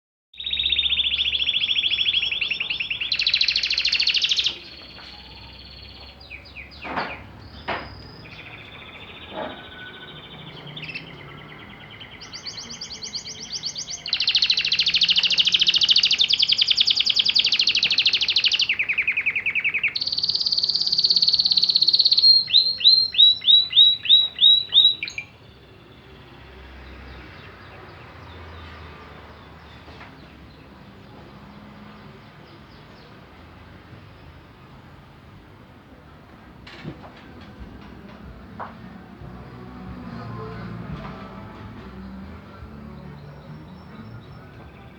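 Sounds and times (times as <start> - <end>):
canary singing trills: 0.3 - 31.2.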